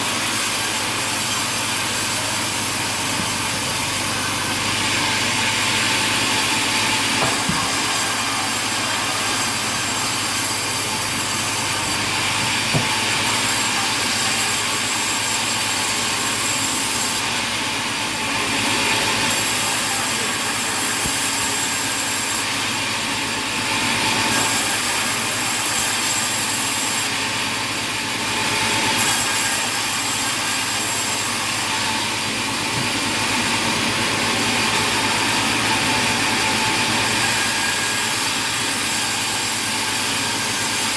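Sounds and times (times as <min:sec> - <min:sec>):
sawmill machinery hiss: 0:00.0 - 0:40.9.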